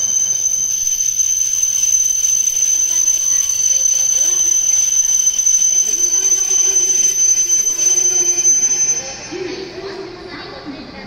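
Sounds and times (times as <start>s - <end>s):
high-pitched train electrical whine: 0.0s - 11.0s.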